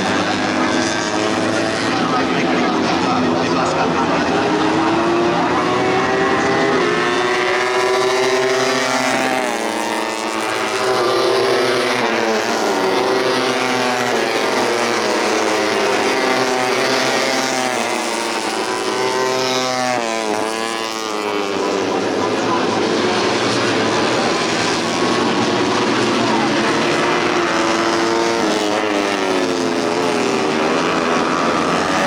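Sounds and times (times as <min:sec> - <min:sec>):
motorcycles revving: 0:00.0 - 0:32.0.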